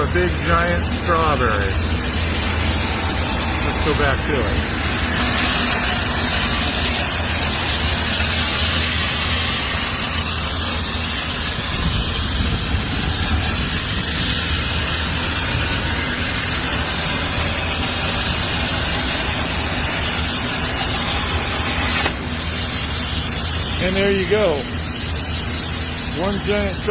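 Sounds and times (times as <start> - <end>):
plasma torch hissing: 0.0 - 26.9.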